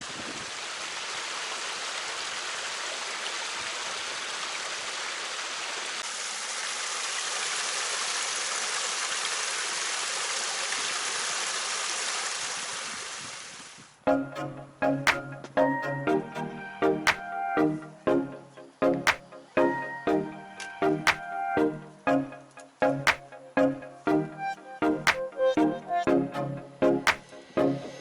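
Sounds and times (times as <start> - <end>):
flowing water rushing: 0.0 - 13.6.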